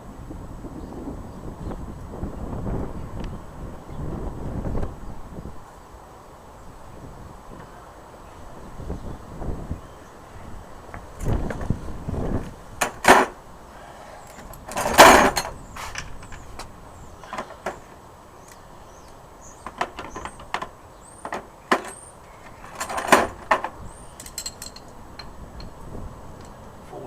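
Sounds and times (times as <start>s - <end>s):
wind rumble on microphone: 0.0s - 6.0s, 6.6s - 17.3s, 22.3s - 27.0s
tools and metal parts clinking: 19.6s - 25.8s.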